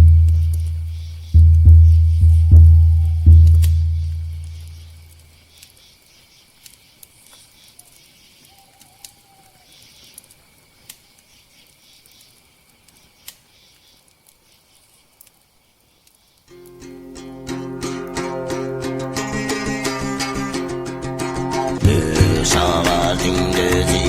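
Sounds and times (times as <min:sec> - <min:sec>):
frame drum boom: 0:00.0 - 0:04.6, 0:21.8 - 0:24.0
fire popping: 0:00.0 - 0:05.8, 0:10.0 - 0:16.9
campfire crackling: 0:00.0 - 0:24.0.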